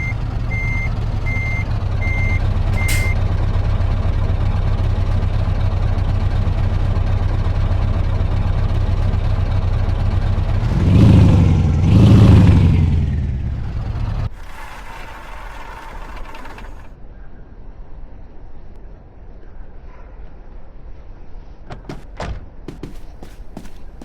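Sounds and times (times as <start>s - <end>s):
reversing beep: 0.0s - 3.2s
diesel truck engine revving: 0.0s - 16.5s.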